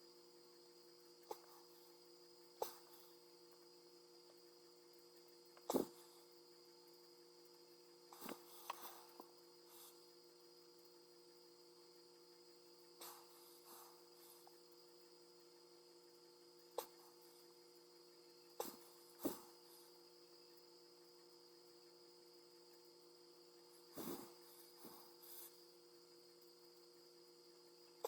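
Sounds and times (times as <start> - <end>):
faint mains hum: 0.0 - 28.0.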